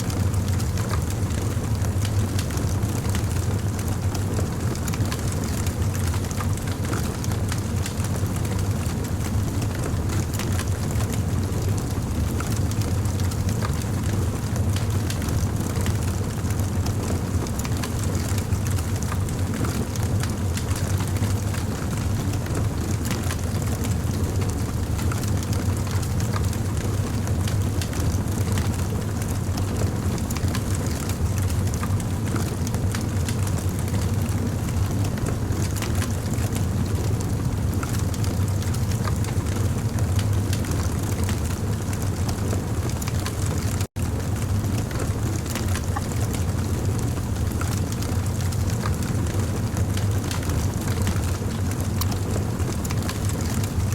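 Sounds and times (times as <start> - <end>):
wood fire crackling: 0.1 - 53.9.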